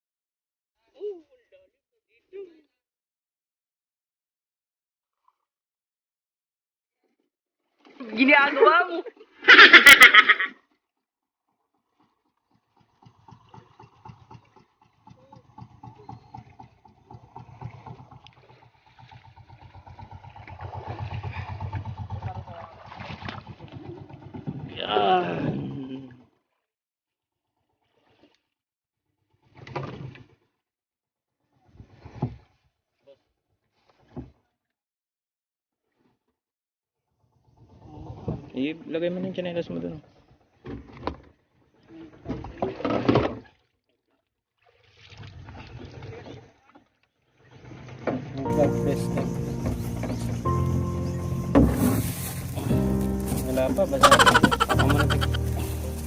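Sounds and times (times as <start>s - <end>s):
wind: 7.8s - 10.6s, 12.0s - 26.3s, 31.6s - 33.2s, 37.4s - 43.7s, 44.7s - 56.0s
boat engine chugging: 12.4s - 24.3s, 48.5s - 56.0s.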